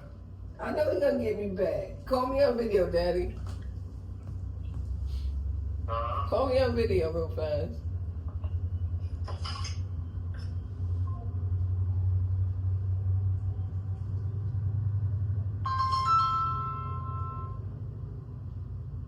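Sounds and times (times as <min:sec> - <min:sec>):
steady low hum: 0:00.0 - 0:19.0
phone ringtone chime: 0:15.6 - 0:17.6.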